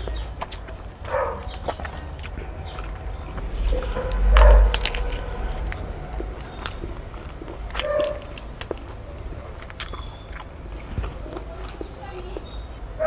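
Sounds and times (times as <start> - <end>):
food being chewed: 0.0 - 13.0
wet mouth clicks and smacks: 0.4 - 3.2, 6.6 - 9.0, 9.6 - 11.9.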